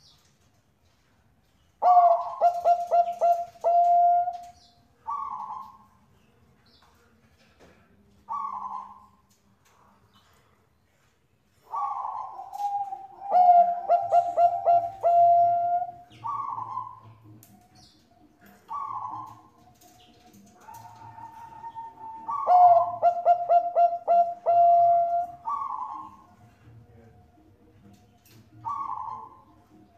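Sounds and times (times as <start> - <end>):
dove cooing: 1.8 - 5.9, 8.3 - 9.2, 11.6 - 27.0, 28.6 - 29.9.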